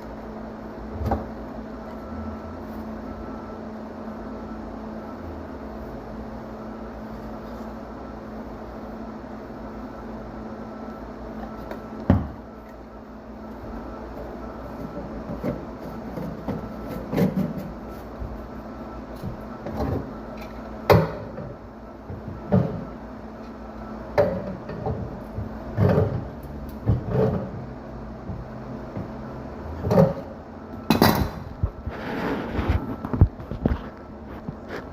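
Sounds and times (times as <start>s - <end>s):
steady low hum: 0.0s - 34.9s
knocks and clunks: 11.7s - 12.5s, 19.2s - 23.0s, 24.1s - 31.8s.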